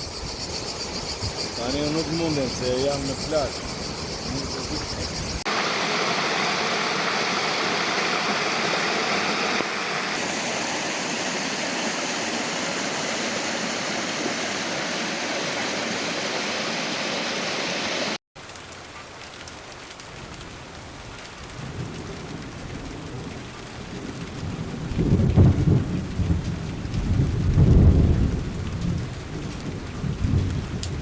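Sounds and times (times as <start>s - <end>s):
waterfall rushing: 5.5s - 18.2s.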